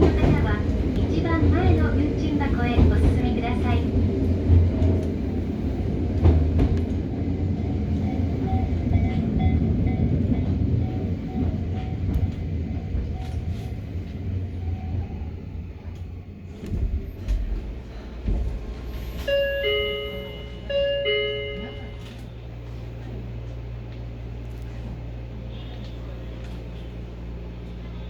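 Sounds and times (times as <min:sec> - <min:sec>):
rail-joint clicks: 0:00.0 - 0:15.1, 0:15.8 - 0:22.4
train running low rumble: 0:00.0 - 0:28.0.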